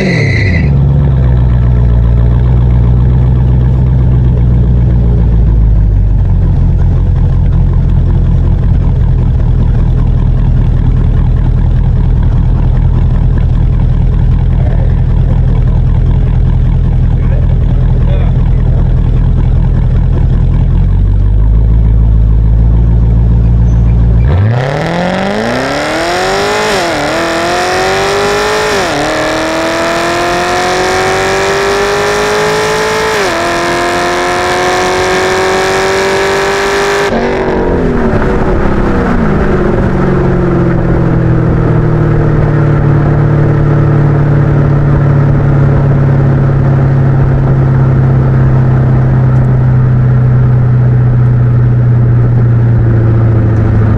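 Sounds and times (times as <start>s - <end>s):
car engine revving hard: 0.0s - 1.5s, 24.2s - 40.9s.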